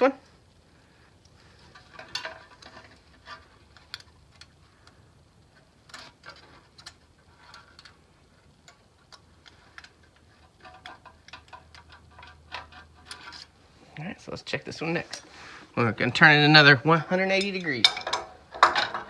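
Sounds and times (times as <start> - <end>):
hand tools clicking and tapping: 17.1 - 19.0.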